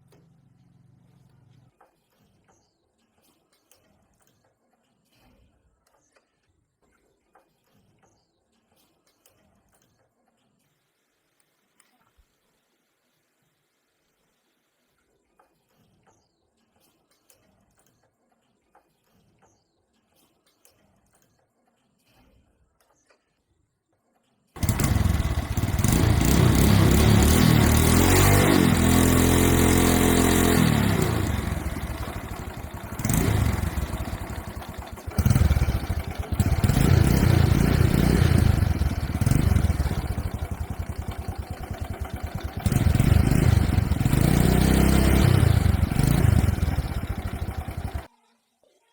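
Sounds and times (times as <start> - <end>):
motorcycle engine revving: 24.6 - 48.1.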